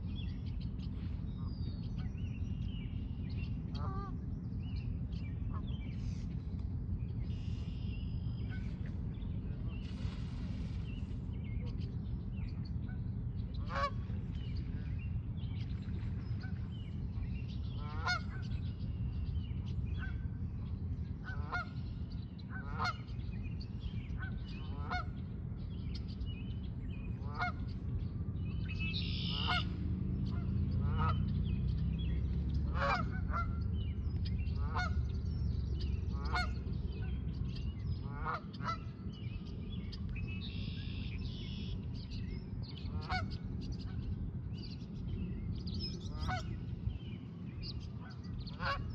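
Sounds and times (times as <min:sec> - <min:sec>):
steady low rumble: 0:00.0 - 0:48.9
bird calling: 0:28.6 - 0:29.7.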